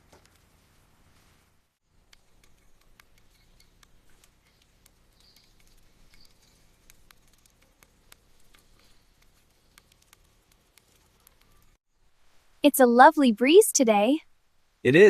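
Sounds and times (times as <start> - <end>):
light clicks and ticks: 2.1 - 11.8.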